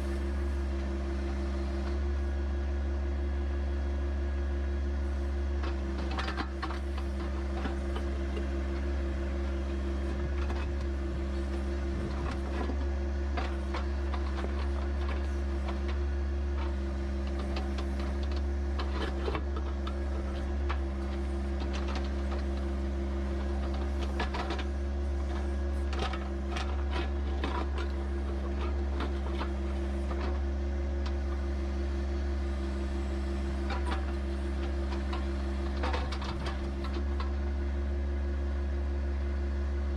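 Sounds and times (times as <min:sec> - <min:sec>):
tractor diesel engine running: 0:00.0 - 0:39.9
light clanks and knocks: 0:09.4 - 0:31.4, 0:33.6 - 0:37.4.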